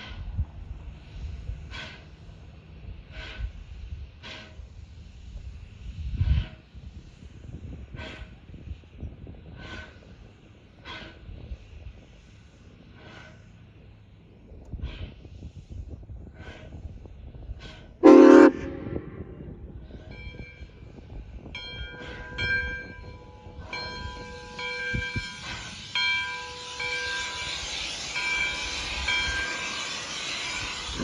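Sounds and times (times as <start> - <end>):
steam hissing: 0.0 - 31.0
steam locomotive whistle: 18.0 - 19.4.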